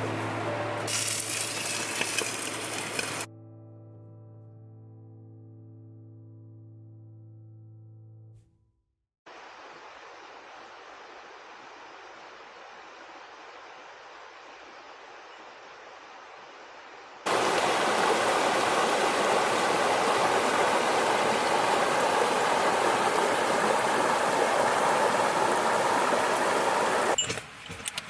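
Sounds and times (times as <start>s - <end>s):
flowing water rushing: 0.0s - 3.3s, 9.3s - 27.2s.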